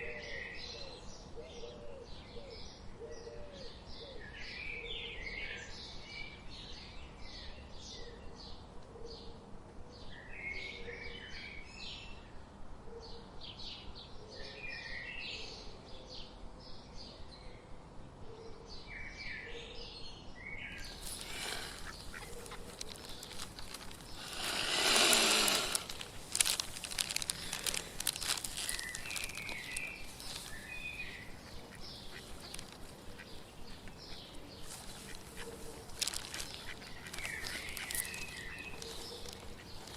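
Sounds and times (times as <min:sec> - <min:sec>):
small birds chirping: 0:20.3 - 0:39.9.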